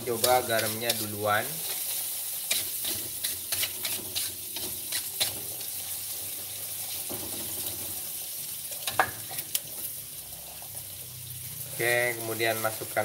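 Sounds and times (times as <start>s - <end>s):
metal spatula scraping pan: 0.0s - 7.8s
chillies sizzling in a wok: 0.0s - 13.0s.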